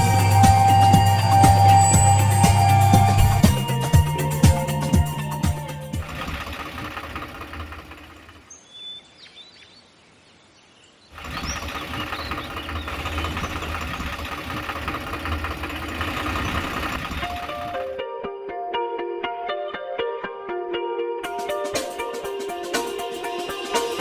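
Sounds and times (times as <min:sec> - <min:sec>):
small motor humming and rattling: 0:00.0 - 0:08.5
bird chirps: 0:08.5 - 0:14.2.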